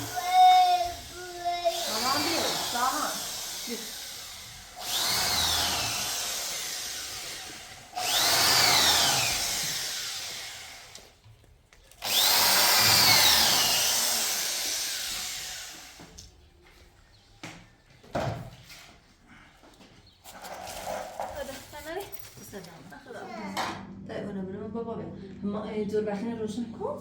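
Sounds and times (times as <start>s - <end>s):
electric drill whining: 0.0s - 11.2s, 12.0s - 16.2s.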